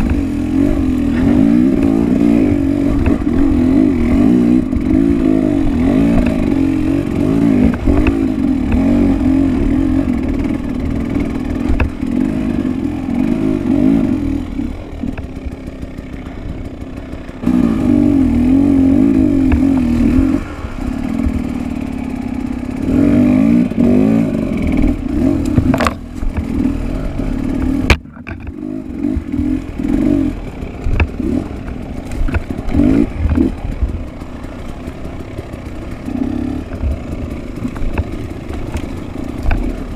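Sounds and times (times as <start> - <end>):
dirt bike engine revving: 0.0 - 39.9
sharp clattering knocks: 10.3 - 12.2, 27.4 - 39.9.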